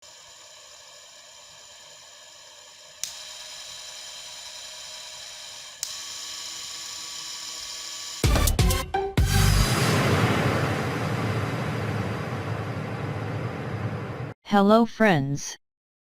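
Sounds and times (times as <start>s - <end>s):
loud music: 8.2s - 12.7s.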